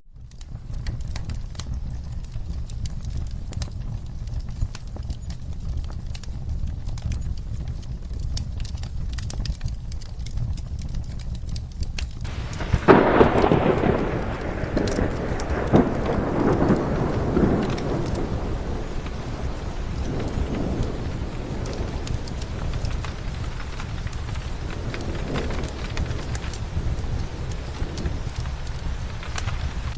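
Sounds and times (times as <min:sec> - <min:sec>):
wood fire crackling: 0:00.0 - 0:29.9
steady rain: 0:00.1 - 0:29.9
thunderclap rolling: 0:12.2 - 0:29.9.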